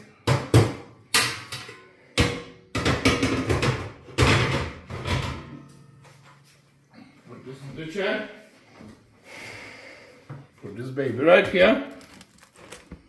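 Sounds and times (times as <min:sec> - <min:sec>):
cookware knocking and clanking: 0:00.2 - 0:05.8
kitchen doors banging: 0:02.2 - 0:05.6.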